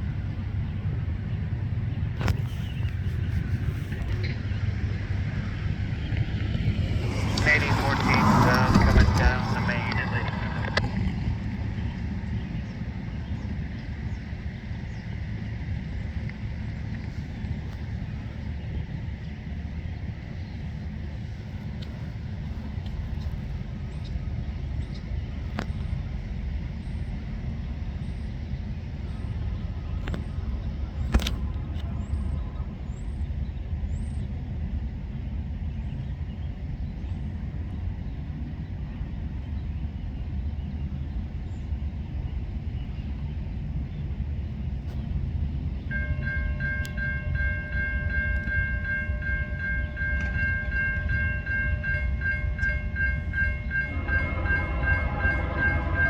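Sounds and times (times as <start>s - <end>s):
freight train rumble: 0.0s - 56.0s
locomotive air horn chord: 45.9s - 56.0s.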